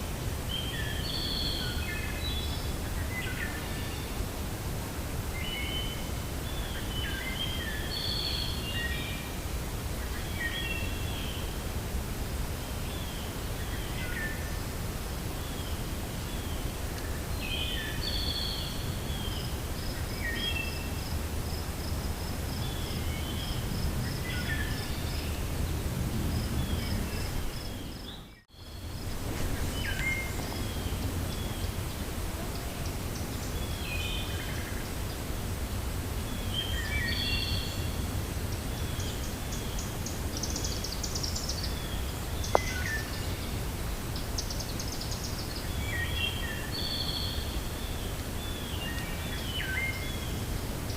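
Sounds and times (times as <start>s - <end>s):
wind through forest: 0.0s - 50.9s
small birds chirping: 15.4s - 35.3s, 36.3s - 43.6s.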